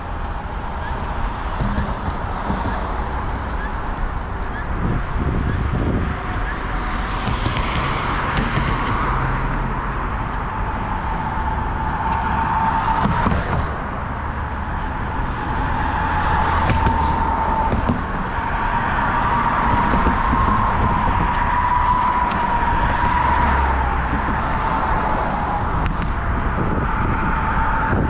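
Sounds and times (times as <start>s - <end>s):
cars passing: 0.0s - 28.0s
steady traffic hum: 0.0s - 28.0s.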